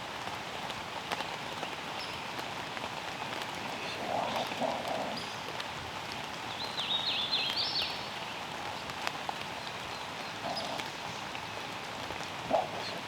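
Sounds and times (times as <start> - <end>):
light rain falling: 0.0 - 13.0
songbird singing: 3.1 - 8.9, 9.5 - 13.0.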